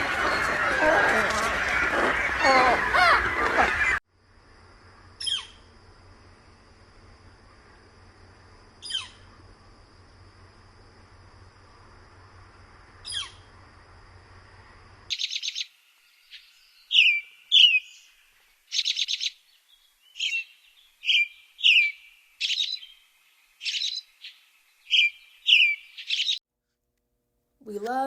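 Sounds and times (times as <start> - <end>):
bird chirps and down-slurred whistles: 20.2 - 23.0.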